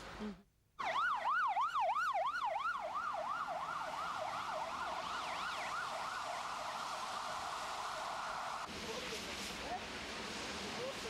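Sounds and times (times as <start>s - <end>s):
siren yelping: 0.8s - 7.0s.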